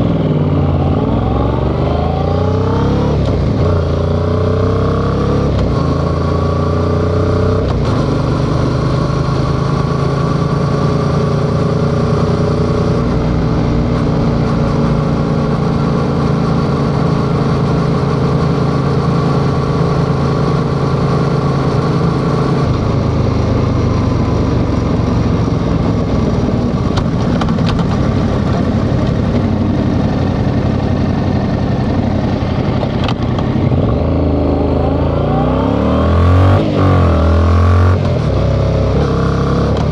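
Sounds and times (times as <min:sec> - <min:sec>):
motorcycle engine revving: 0:00.0 - 0:17.0, 0:27.2 - 0:39.9.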